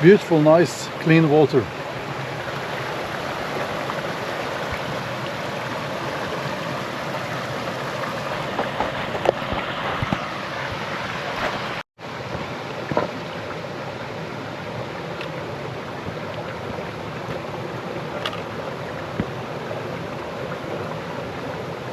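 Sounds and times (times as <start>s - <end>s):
stream water rushing: 0.0s - 21.9s
water splashes and knocks: 2.6s - 6.5s, 7.1s - 13.6s, 16.0s - 19.5s.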